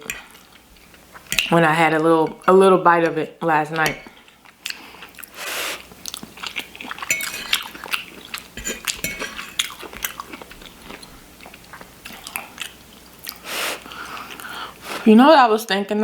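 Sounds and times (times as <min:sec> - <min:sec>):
person chewing food: 0:04.0 - 0:15.0.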